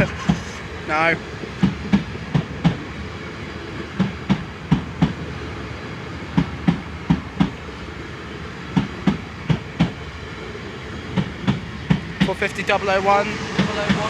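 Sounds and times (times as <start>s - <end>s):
train wheels clicking over rail joint: 0.0s - 0.8s, 6.4s - 7.6s, 8.7s - 10.0s, 11.2s - 12.4s
train rumble: 0.0s - 14.0s.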